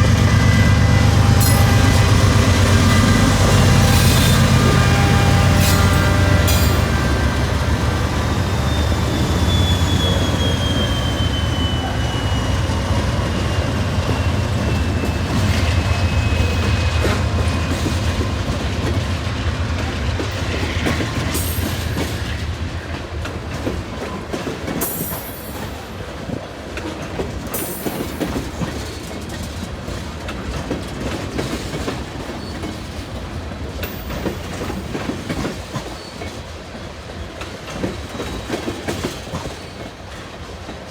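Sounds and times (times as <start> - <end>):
clickety-clack of train wheels: 0.0 - 40.9
diesel locomotive engine rumble: 0.0 - 40.9
wheel squeal: 0.2 - 18.4.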